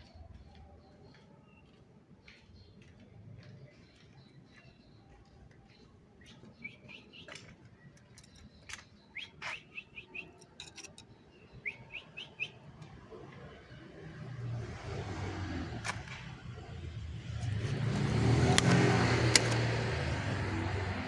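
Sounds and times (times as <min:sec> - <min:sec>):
canary chirping: 0:06.4 - 0:12.7
sharp clicks: 0:17.4 - 0:20.1.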